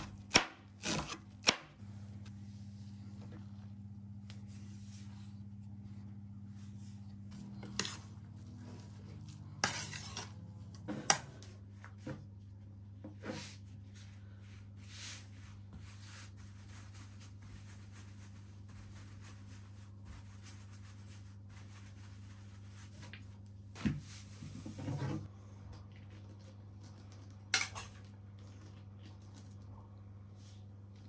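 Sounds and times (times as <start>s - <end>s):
low hum: 1.8s - 13.0s.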